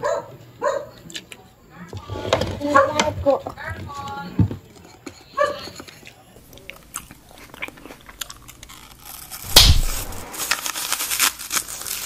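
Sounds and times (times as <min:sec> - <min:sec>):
children chewing fried snacks: 0:04.7 - 0:12.0
loud thump: 0:09.5 - 0:10.3.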